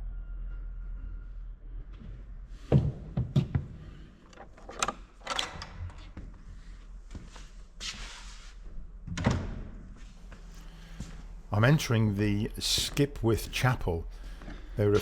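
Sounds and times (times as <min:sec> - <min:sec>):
sharp knocks and thuds: 0:02.7 - 0:03.8.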